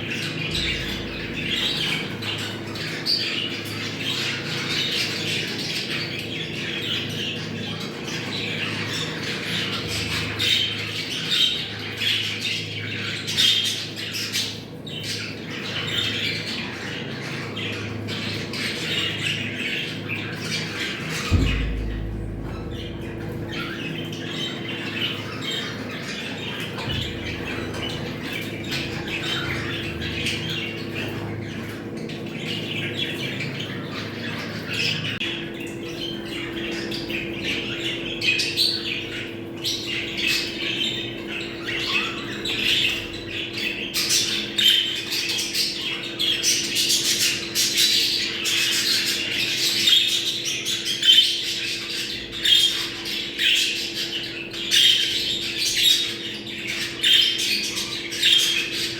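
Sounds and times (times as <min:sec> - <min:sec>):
steady low hum: 0:00.0 - 0:04.9, 0:16.0 - 0:38.1
budgerigars chattering and squawking: 0:00.0 - 0:58.9.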